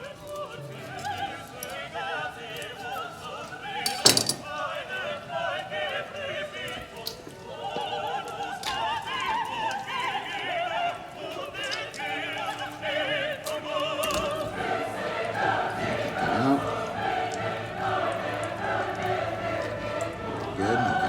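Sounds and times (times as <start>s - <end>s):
opera singer with vibrato: 0.0s - 21.0s
faint clicks: 5.9s - 10.6s.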